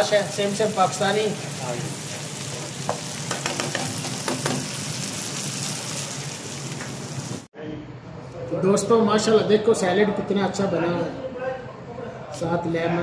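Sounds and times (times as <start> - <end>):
food sizzling in frying pan: 0.0 - 7.5.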